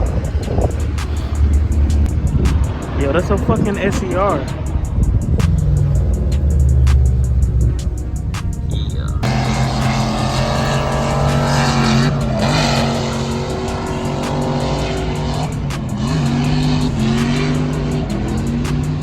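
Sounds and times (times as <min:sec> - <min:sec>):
car engine at high revs: 0:00.0 - 0:19.0.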